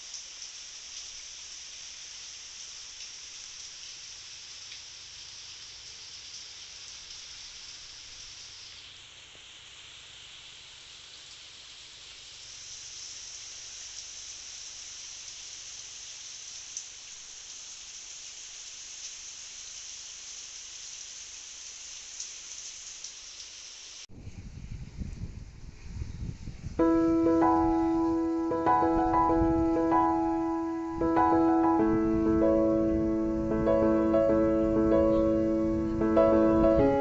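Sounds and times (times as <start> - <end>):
heavy rain falling: 0.0 - 24.1, 26.8 - 37.0.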